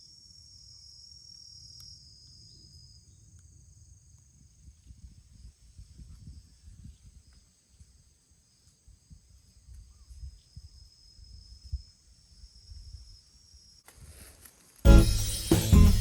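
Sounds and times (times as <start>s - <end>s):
insects chirring: 0.0s - 15.4s.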